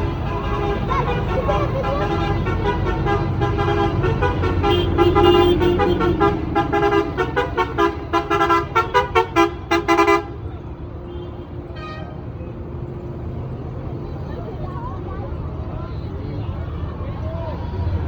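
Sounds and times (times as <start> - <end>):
vehicle horn: 0.0 - 12.4
tractor engines rumbling: 0.0 - 18.0.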